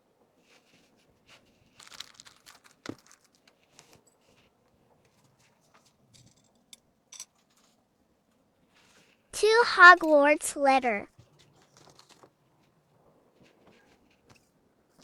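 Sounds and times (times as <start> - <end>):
packaging crinkling and rustling: 0.6 - 4.5, 11.3 - 12.8.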